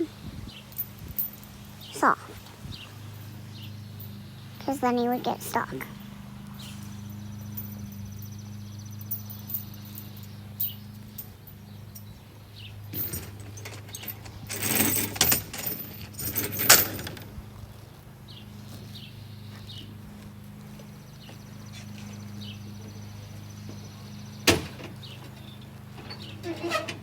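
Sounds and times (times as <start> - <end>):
vehicle engine humming: 0.0 - 27.0
loud clinking and rattling: 7.1 - 17.4.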